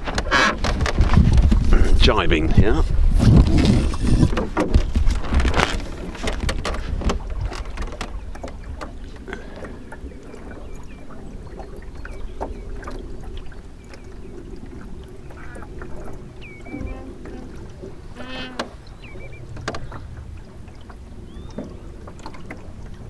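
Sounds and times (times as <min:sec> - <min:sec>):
boat gear knocking: 0:00.0 - 0:02.1, 0:03.3 - 0:10.0, 0:15.3 - 0:20.3
water running along hull: 0:00.0 - 0:23.0
wind buffeting microphone: 0:00.0 - 0:23.0.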